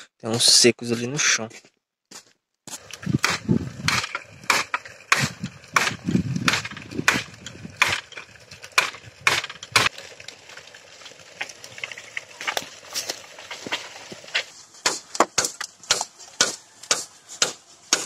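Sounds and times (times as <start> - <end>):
footsteps crunching dry leaves: 9.9 - 17.9.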